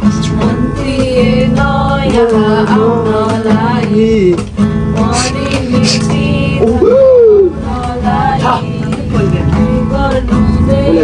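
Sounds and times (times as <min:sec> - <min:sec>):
strummed acoustic guitar: 0:00.0 - 0:11.0
person singing: 0:05.0 - 0:11.0.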